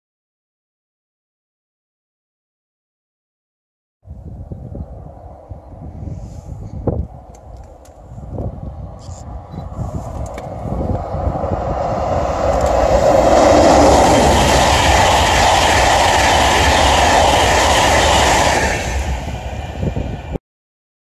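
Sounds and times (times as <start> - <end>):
train rushing past: 8.4 - 20.4.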